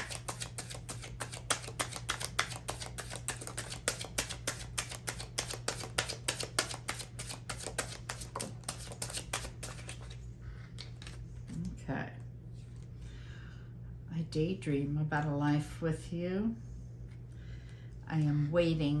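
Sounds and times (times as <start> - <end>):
cards being shuffled: 0.0 - 11.6
low electrical hum: 0.0 - 19.0.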